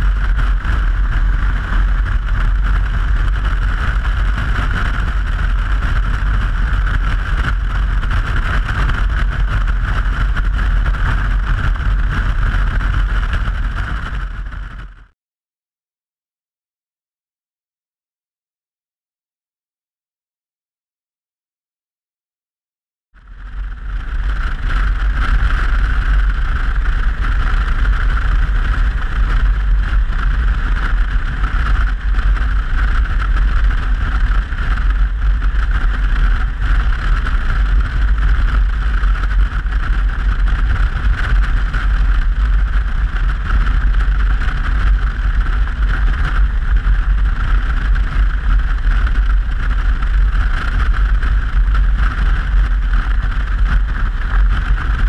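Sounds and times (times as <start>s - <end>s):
wind buffeting microphone: 0.0s - 15.1s, 23.2s - 55.0s
motorcycle engine and road noise: 0.0s - 15.2s, 23.2s - 55.0s.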